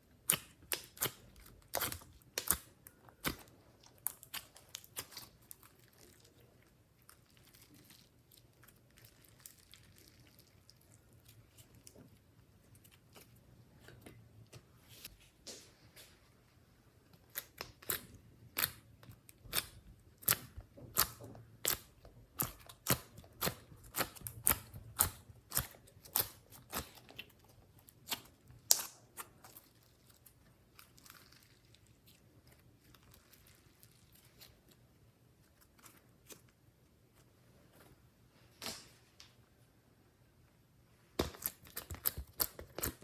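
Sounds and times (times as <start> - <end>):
slime squishing: 0.0 - 37.8, 41.1 - 43.0
slime clicking and popping: 0.2 - 3.4.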